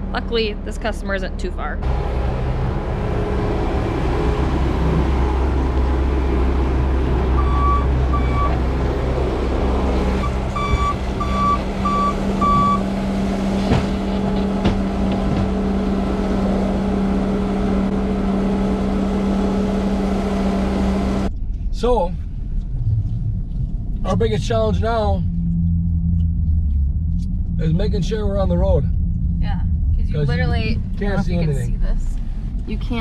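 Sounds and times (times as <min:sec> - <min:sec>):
vehicle engine running: 0:00.0 - 0:33.0
reversing alarm beeping: 0:07.3 - 0:08.7, 0:10.1 - 0:12.9
sharp knocks: 0:13.6 - 0:15.6.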